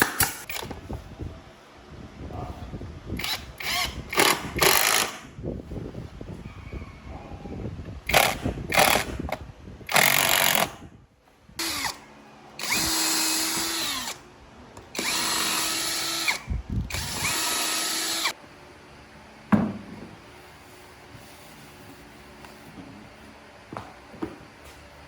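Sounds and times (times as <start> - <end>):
power drill running in bursts: 3.2 - 5.2, 12.6 - 14.2, 14.9 - 18.4.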